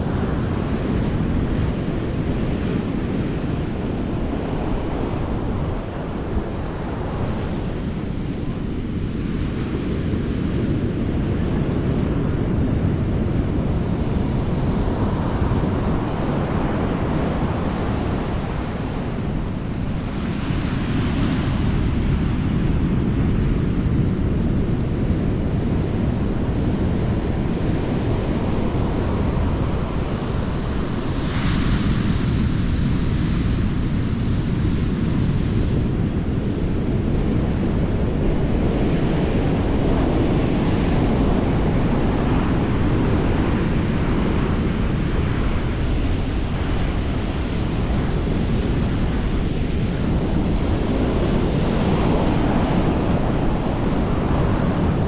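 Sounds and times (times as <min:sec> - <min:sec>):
wind rumbling on microphone: 0:00.0 - 0:55.0
ocean surf breaking: 0:25.8 - 0:36.1.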